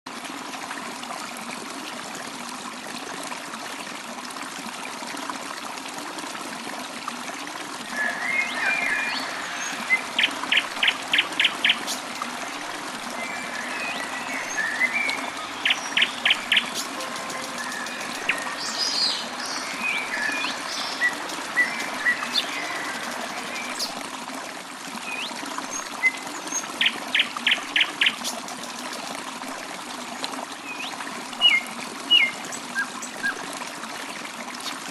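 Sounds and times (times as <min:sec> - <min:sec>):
water trickling: 0:00.1 - 0:34.9
birds chirping: 0:07.8 - 0:24.0.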